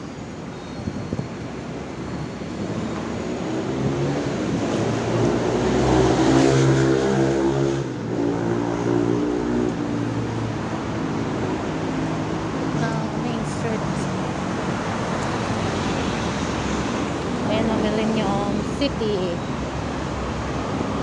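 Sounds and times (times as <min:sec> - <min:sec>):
street traffic noise: 0:00.0 - 0:21.0
vehicle engine passing: 0:03.1 - 0:18.7.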